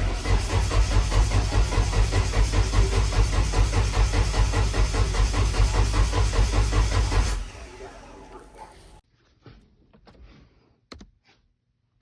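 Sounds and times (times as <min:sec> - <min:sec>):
engine cranking on starter: 0:00.0 - 0:09.0.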